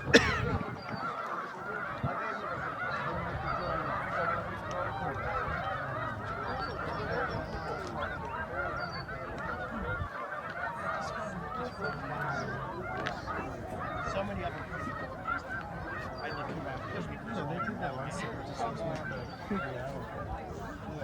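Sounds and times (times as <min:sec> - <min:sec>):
flock of geese honking: 0:00.0 - 0:21.0.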